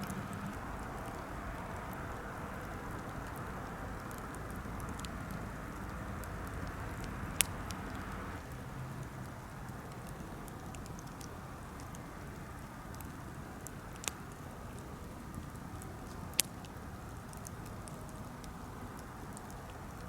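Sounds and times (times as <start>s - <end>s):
campfire hissing and crackling: 0.0s - 20.0s.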